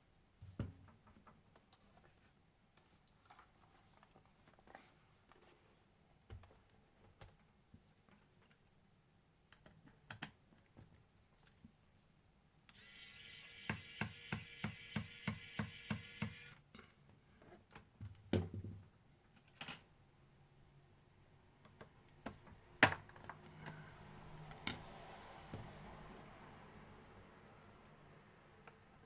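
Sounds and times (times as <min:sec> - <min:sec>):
hand tool motor whirring: 0:12.7 - 0:16.6.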